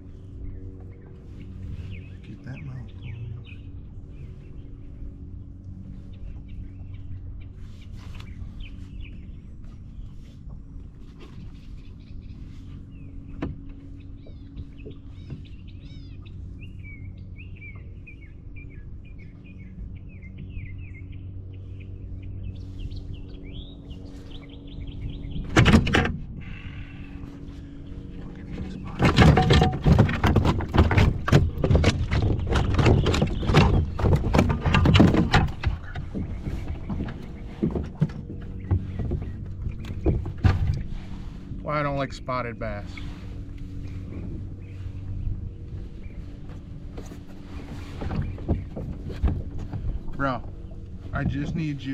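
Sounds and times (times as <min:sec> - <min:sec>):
birds chirping: 0:00.0 - 0:25.8, 0:26.4 - 0:51.9
fish thrashing against kayak: 0:27.9 - 0:41.6, 0:42.9 - 0:51.9.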